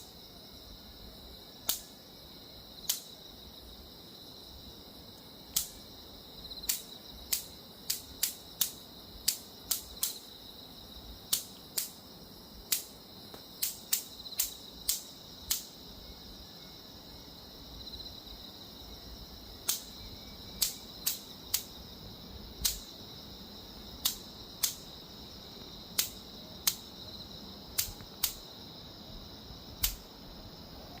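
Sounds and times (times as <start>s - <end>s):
mosquito zapper cracks: 6.7s - 10.2s, 19.6s - 19.9s, 22.6s - 22.9s, 24.0s - 24.9s, 25.9s - 26.9s, 27.8s - 28.4s, 29.8s - 30.1s.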